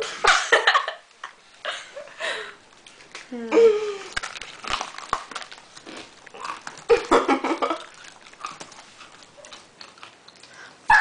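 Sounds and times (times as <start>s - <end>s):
foil wrapper crinkling: 2.6s - 10.3s
granola bar crunching: 4.0s - 10.6s.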